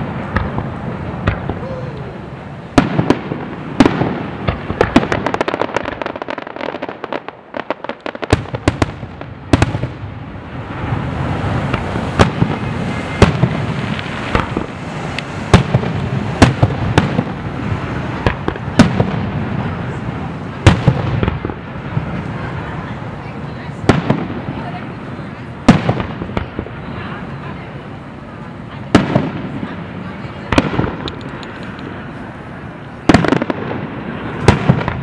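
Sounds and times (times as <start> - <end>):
small crackling firework reports: 0.0 - 35.0
firework shell bursts booming: 11.5 - 17.4.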